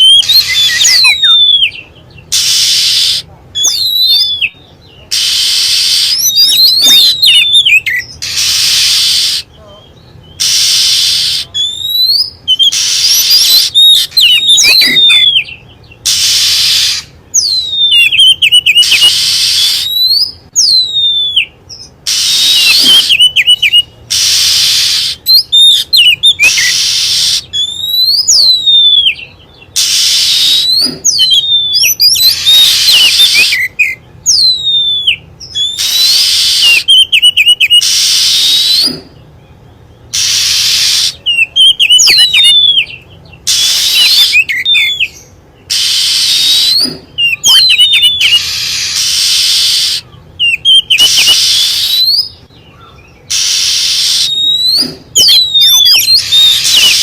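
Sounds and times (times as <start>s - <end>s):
bird whistled notes: 0.0s - 39.1s, 40.1s - 57.0s
bird harsh hissing rasps: 2.3s - 3.3s, 5.1s - 6.2s, 8.2s - 9.5s, 10.4s - 11.6s, 12.7s - 14.1s, 16.0s - 17.1s, 18.8s - 19.9s, 22.0s - 23.2s, 24.1s - 25.4s, 26.3s - 27.6s, 29.8s - 31.3s, 32.0s - 33.8s, 35.8s - 36.9s, 37.7s - 39.2s, 40.1s - 41.3s, 43.5s - 44.4s, 45.7s - 47.4s, 48.2s - 50.1s, 50.9s - 52.0s, 53.3s - 55.3s, 56.2s - 57.0s.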